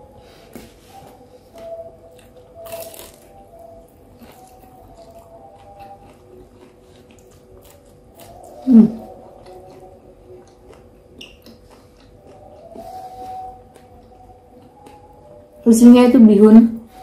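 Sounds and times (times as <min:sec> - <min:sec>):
chewing mouth sounds: 0:04.2 - 0:15.2.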